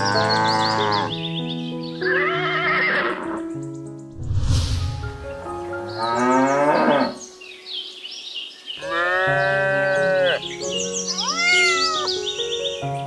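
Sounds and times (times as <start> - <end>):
cow mooing: 0.0 - 1.1, 8.8 - 10.4
background music: 0.0 - 13.0.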